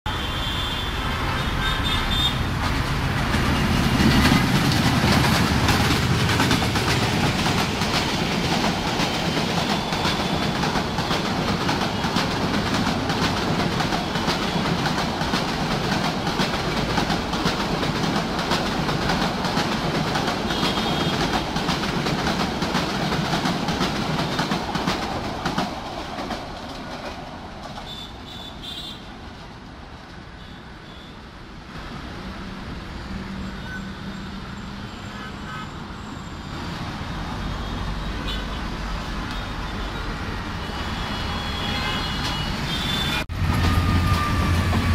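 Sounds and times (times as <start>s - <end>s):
train wheels clattering: 2.5s - 28.4s.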